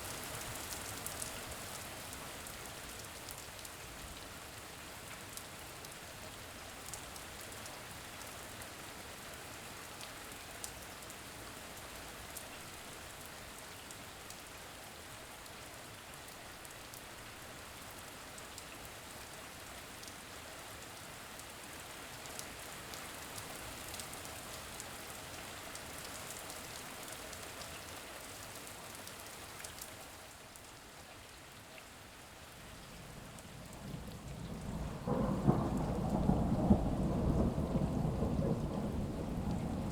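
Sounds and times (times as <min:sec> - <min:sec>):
steady rain hiss: 0:00.0 - 0:39.9
thunder rumble: 0:33.2 - 0:39.9.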